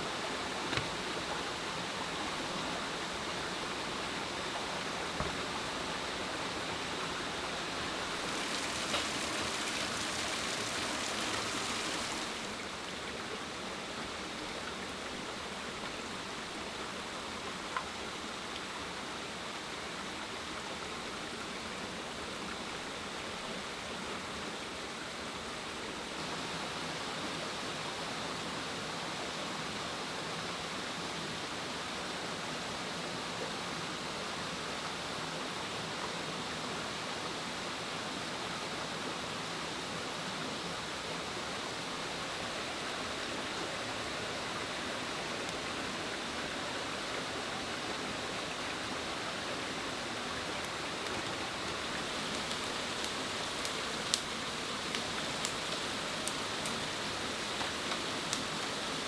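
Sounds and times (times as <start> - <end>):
steady rushing hiss: 0.0 - 13.0, 38.2 - 59.0
faint clicks: 50.6 - 59.0.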